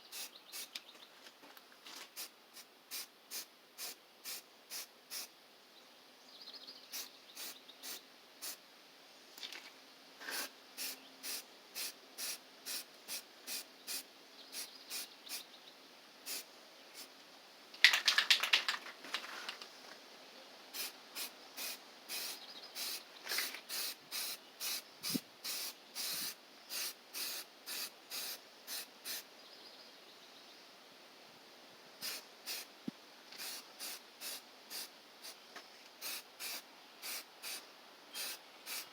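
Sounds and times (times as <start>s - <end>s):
aerosol spray hissing bursts: 20.8s - 23.0s, 23.6s - 29.2s, 32.0s - 32.7s, 33.4s - 35.4s, 36.0s - 37.6s, 38.2s - 38.9s.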